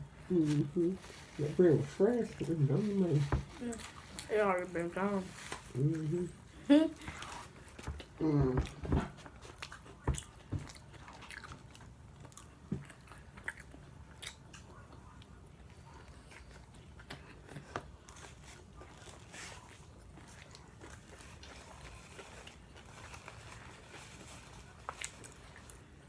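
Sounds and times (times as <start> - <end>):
food crunching: 7.0 - 26.0
person chewing: 7.0 - 26.0.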